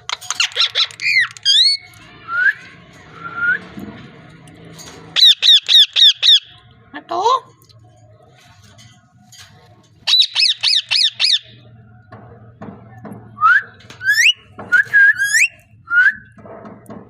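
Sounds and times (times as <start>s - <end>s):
parrot squawking: 0.1s - 1.9s, 5.2s - 6.6s, 10.0s - 11.6s
parrot whistling: 10.1s - 11.6s, 13.4s - 16.3s.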